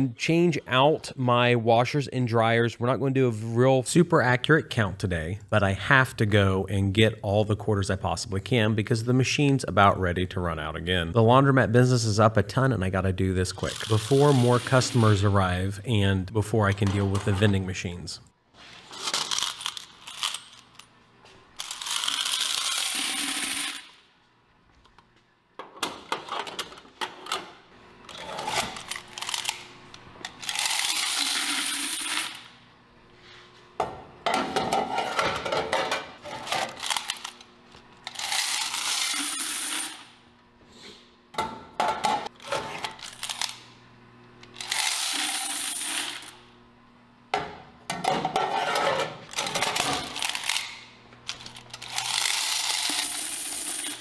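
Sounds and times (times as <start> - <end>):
coins jingling into bucket: 19.1 - 20.7, 51.8 - 54.0.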